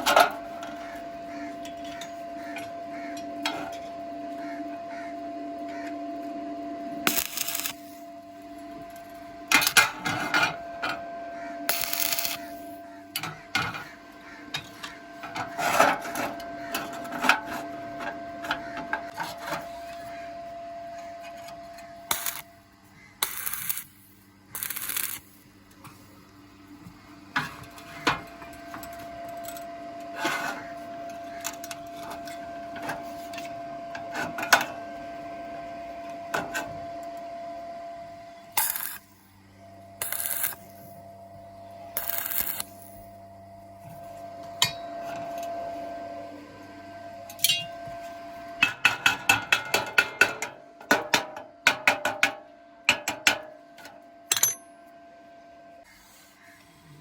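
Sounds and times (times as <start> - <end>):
steady machine hum: 0.0 - 57.0
welding bursts on steel: 7.1 - 8.0, 11.7 - 12.8, 22.1 - 22.5, 23.2 - 25.4, 38.6 - 39.2, 40.0 - 41.0, 42.0 - 43.1.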